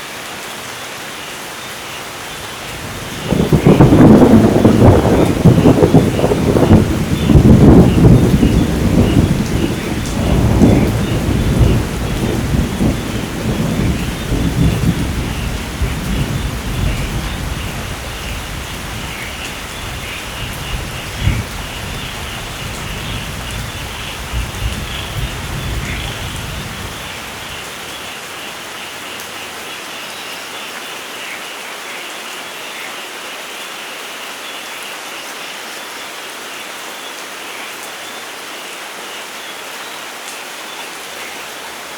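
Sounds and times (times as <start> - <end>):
heavy rain: 0.0 - 41.9
thunder rumbling: 2.5 - 28.0
thunder crack: 3.0 - 19.2.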